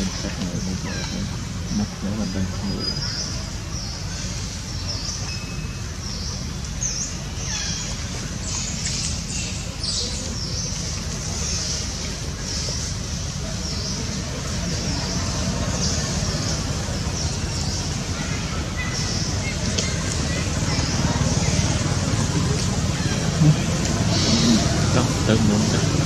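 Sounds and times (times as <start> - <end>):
birds chirping: 0.0 - 26.0
steady low rumble: 6.0 - 26.0.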